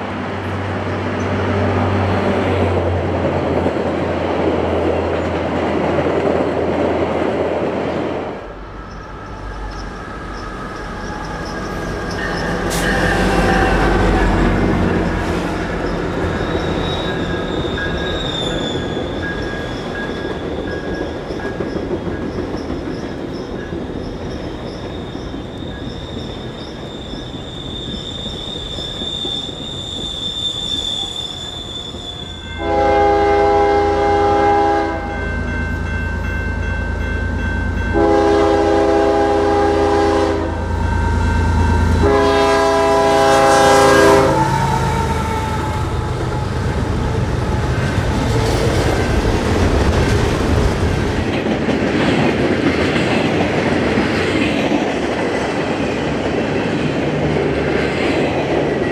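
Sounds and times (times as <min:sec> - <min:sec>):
diesel locomotive passing: 0:00.0 - 0:58.9
train wheels rolling: 0:00.0 - 0:58.9
high-pitched wheel squeal: 0:08.8 - 0:21.1, 0:23.9 - 0:32.6
locomotive air horn blasts: 0:32.3 - 0:35.2, 0:37.9 - 0:46.5.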